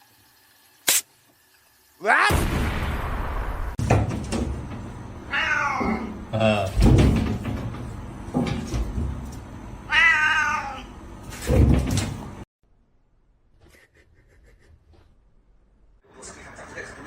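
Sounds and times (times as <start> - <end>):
cat meowing: 5.3 - 6.1, 9.9 - 10.9.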